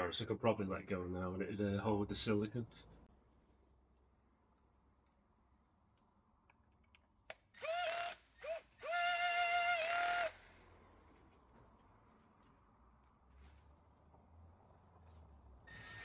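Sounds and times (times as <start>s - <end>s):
cordless drill motor whining: 7.6s - 10.5s, 15.7s - 16.0s.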